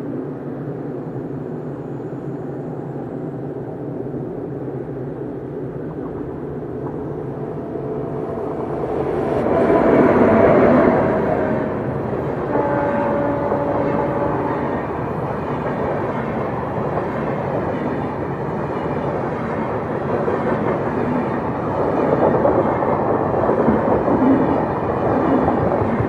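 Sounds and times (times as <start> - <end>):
train rumble: 0.0 - 26.0
train wheel clatter: 5.8 - 26.0.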